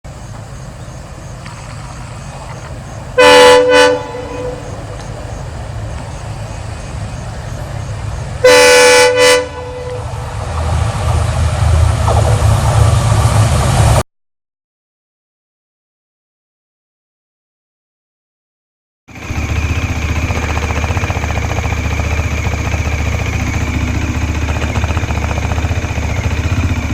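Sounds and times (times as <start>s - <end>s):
motorcycle engine idling: 0.1s - 10.0s, 19.1s - 26.9s
vehicle horn honking: 3.2s - 4.8s, 8.4s - 10.2s.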